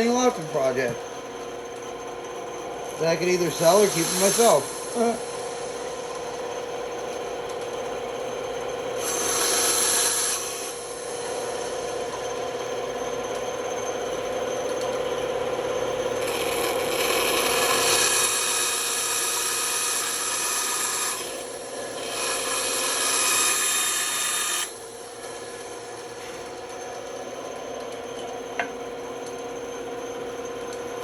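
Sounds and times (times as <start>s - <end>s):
band saw cutting wood: 2.9s - 6.5s, 8.9s - 11.6s, 16.0s - 25.4s.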